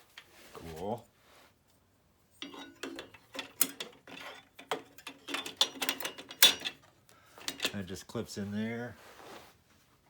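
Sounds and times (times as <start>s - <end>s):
saw accessories clicking and rattling: 2.4s - 7.8s.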